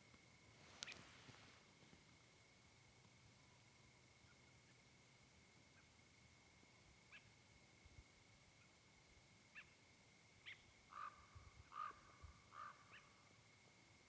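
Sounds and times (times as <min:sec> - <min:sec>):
faint bird calls: 0:00.6 - 0:01.6, 0:07.1 - 0:07.4, 0:09.5 - 0:09.8, 0:10.4 - 0:13.3.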